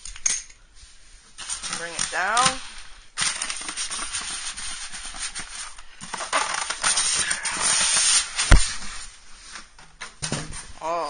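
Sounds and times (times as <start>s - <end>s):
packing crackling and scraping: 1.4s - 9.1s.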